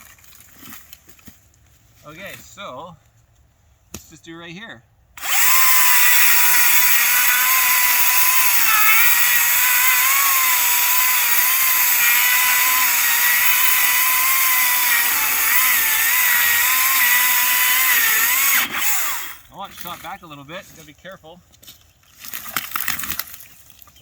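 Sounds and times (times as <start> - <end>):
electric chainsaw cutting wood: 5.2 - 19.5.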